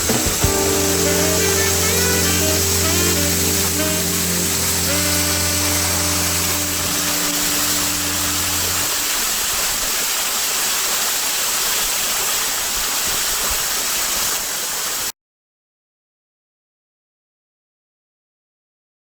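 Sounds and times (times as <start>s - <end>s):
held music tones: 0.0s - 9.3s
waterfall roaring: 0.0s - 15.1s.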